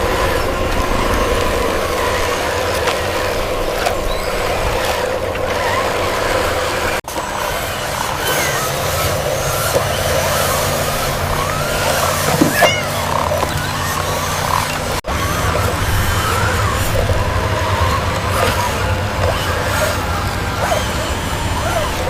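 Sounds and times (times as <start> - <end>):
mechanical drone with hum: 0.0 - 22.0
faint squeaks: 9.4 - 15.0.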